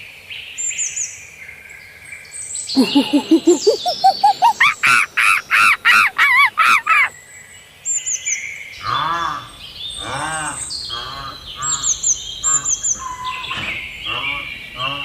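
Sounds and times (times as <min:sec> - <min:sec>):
birds calling: 0:02.7 - 0:07.2, 0:08.7 - 0:15.0
high quick bird chirps: 0:02.8 - 0:07.1.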